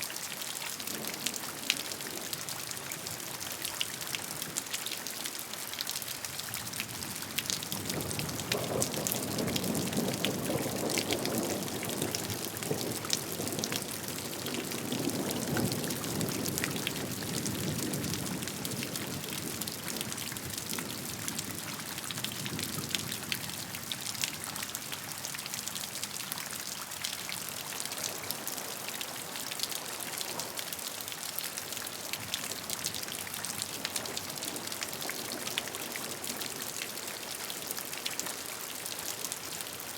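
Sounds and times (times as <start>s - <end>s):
rain falling: 0.0s - 39.9s
raindrops ticking close by: 0.1s - 39.9s.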